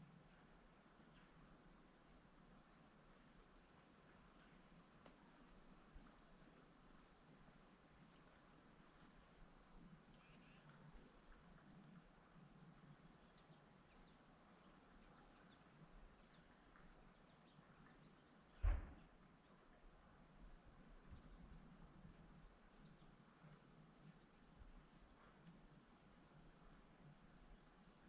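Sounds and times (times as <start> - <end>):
dull thump: 18.6 - 19.0.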